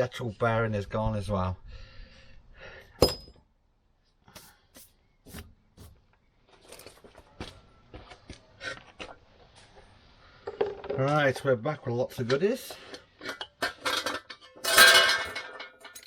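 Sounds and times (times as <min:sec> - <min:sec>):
metallic clank with ringing: 0:03.0 - 0:03.4.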